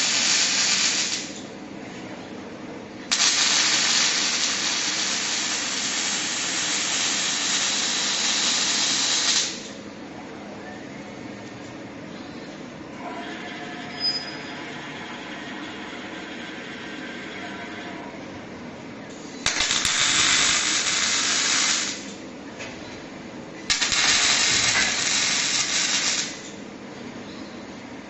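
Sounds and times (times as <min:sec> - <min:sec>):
arc welding hissing crackle: 0:00.0 - 0:01.5, 0:03.1 - 0:09.8, 0:19.2 - 0:22.2, 0:23.7 - 0:26.6
low machine hum: 0:00.0 - 0:28.0.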